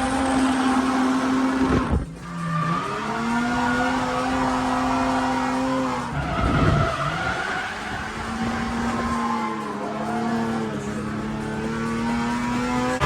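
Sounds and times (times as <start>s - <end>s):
car engine revving high: 0.0s - 13.0s
tyres squealing: 2.2s - 13.0s.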